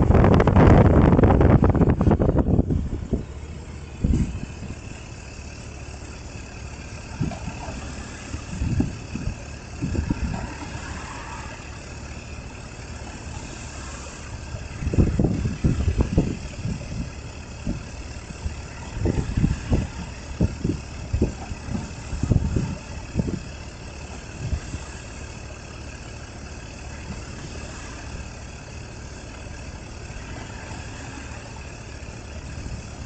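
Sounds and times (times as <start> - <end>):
wind noise on microphone: 0.0 - 4.9, 7.1 - 10.9, 14.4 - 23.6, 24.3 - 24.9
engine idling: 0.0 - 33.0
short bumps: 0.3 - 5.3, 6.8 - 11.6.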